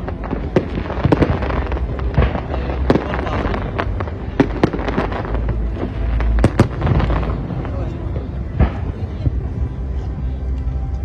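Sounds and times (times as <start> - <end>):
firework bangs: 0.0 - 9.6
firework crackling: 0.0 - 11.0.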